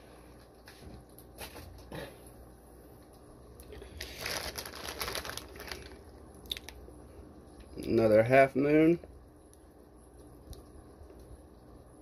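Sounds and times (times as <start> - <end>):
plastic bags crinkling: 3.7 - 6.8.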